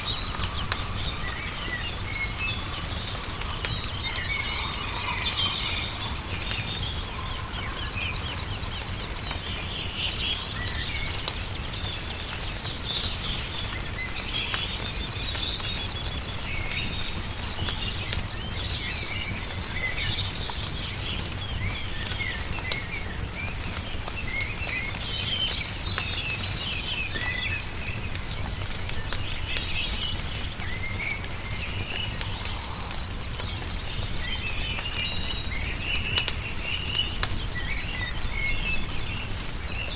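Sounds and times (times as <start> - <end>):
low outdoor rumble: 0.0 - 14.2
songbirds chirping: 0.0 - 39.9
wood fire crackling: 0.0 - 39.9.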